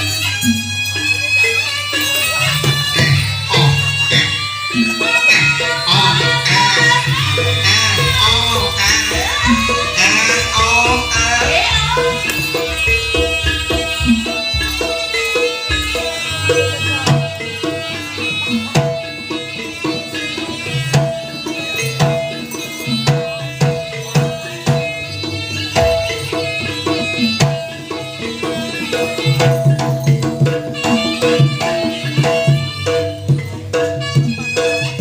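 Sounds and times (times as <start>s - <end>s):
sustained pitched instrument tones: 0.0s - 23.4s
hand drums beating brisk rhythm: 0.0s - 35.0s.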